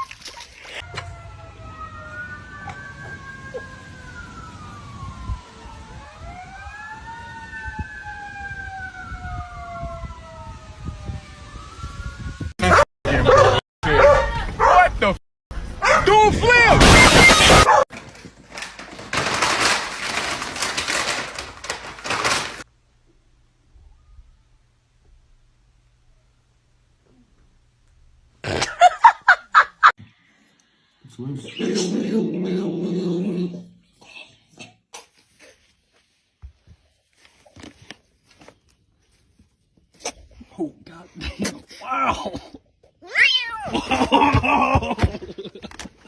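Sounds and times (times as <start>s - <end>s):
siren wailing: 0.8s - 13.5s, 16.5s - 17.8s.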